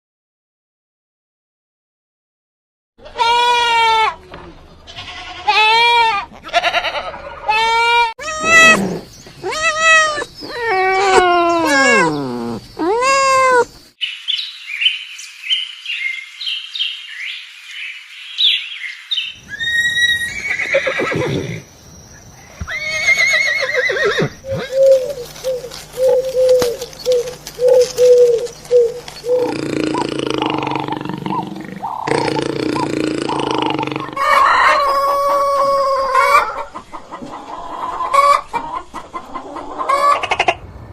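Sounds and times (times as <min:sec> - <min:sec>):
farm animal cries: 0:03.0 - 0:04.2, 0:04.9 - 0:13.8, 0:19.4 - 0:21.6, 0:22.6 - 0:36.7.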